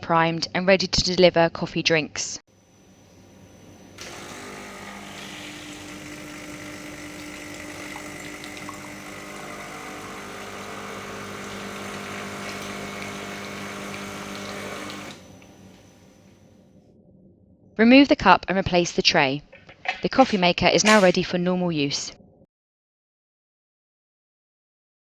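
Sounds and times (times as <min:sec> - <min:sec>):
espresso machine pump humming: 0:03.7 - 0:15.8
water flushing into cup: 0:04.0 - 0:15.4.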